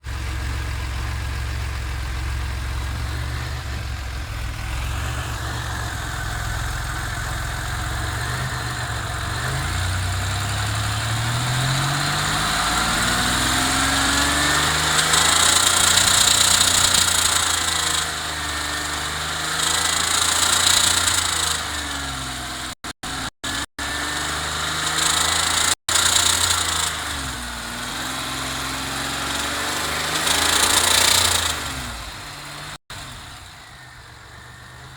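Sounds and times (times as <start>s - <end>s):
car engine revving: 0.0s - 34.9s
high-pitched valve-train noise: 22.9s - 27.1s.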